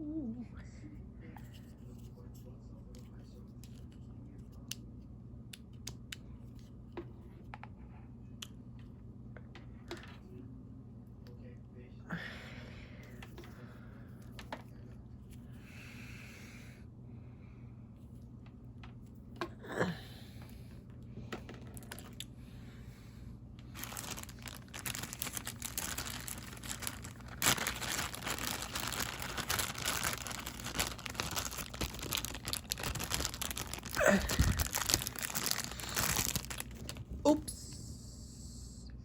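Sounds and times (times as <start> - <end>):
packaging crinkling and tearing: 21.6 - 22.2, 23.6 - 37.4.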